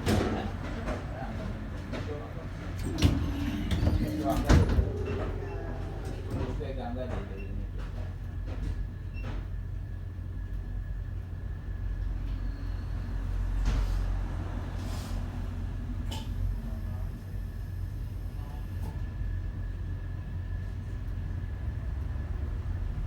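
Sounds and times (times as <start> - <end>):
tram running: 0.0 - 23.0
faint high tone: 2.9 - 6.6.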